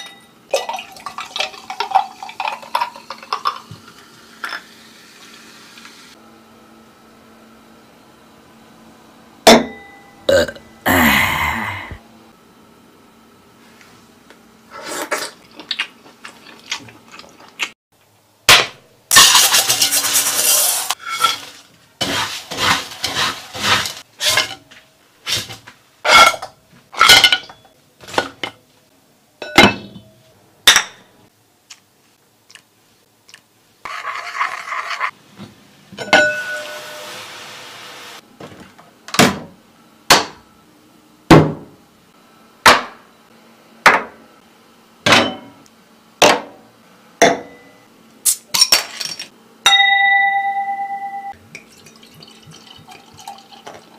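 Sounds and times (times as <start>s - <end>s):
kitchenware clinks and knocks: 29.4s - 30.1s.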